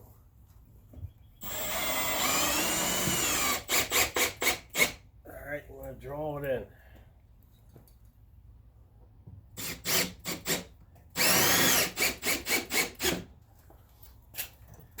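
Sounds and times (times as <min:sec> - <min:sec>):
power drill driving a screw: 0:01.4 - 0:05.0, 0:09.6 - 0:13.3.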